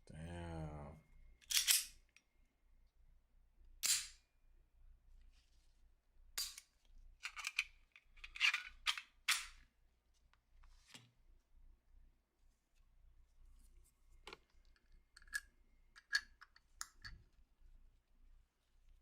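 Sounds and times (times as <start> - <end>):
pistol parts clicking together: 1.4 - 2.2, 3.8 - 4.2, 6.4 - 9.6, 15.2 - 17.2.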